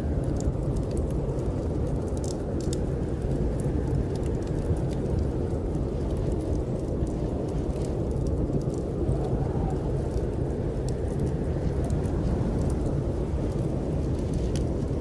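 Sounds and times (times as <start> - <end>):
snowstorm wind rumbling: 0.0 - 15.0
wood fire crackling: 0.0 - 15.0.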